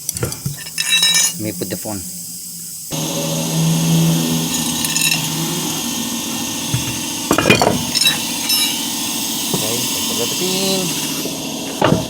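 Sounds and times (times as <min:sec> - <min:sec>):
metal tools clinking: 0:00.0 - 0:02.0, 0:04.5 - 0:05.8, 0:06.6 - 0:08.9
steady low hum: 0:00.0 - 0:12.0.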